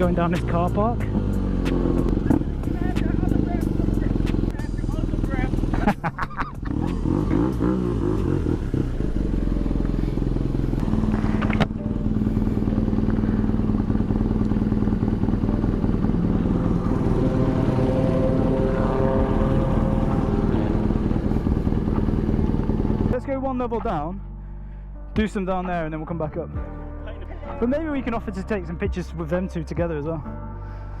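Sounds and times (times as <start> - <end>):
motorcycle engine running: 0.0 - 23.2.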